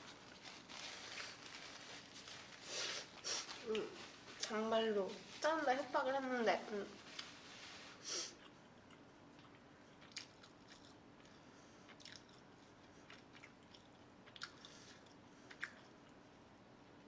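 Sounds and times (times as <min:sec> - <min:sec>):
person chewing: 0:08.4 - 0:16.2
mouth clicks and smacks: 0:15.5 - 0:15.9.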